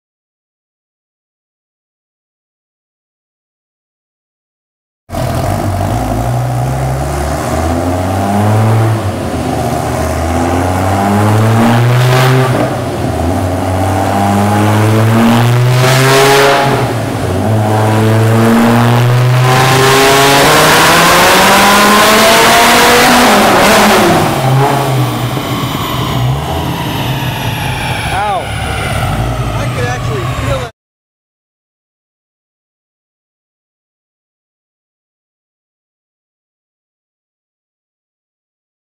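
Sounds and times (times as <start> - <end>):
car engine revving at full throttle: 5.1 - 30.7.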